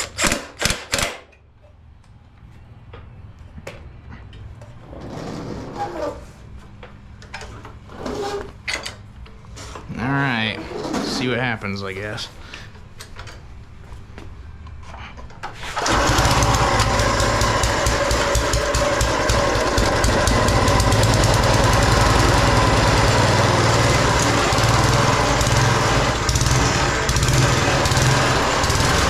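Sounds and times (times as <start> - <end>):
small gasoline engine running: 15.8 - 29.0.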